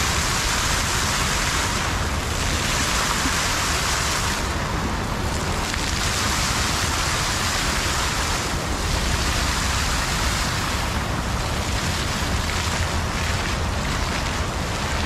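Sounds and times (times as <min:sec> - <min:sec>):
water feature splashing: 0:00.0 - 0:15.0.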